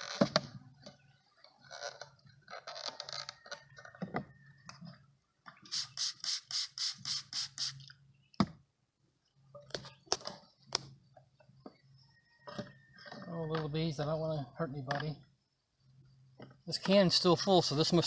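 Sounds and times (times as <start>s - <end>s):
quick even rasps: 5.7s - 7.9s.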